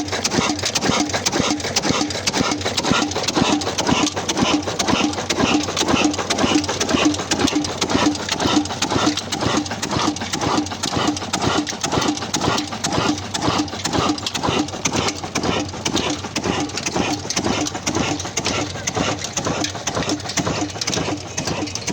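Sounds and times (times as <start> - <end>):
diesel engine running steadily: 0.0 - 21.9.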